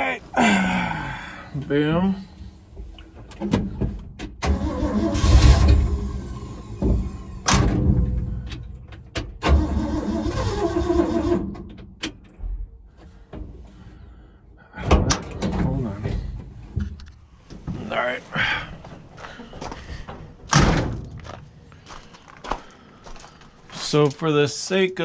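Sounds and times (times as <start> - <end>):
engine starter cranking: 4.3 - 12.2.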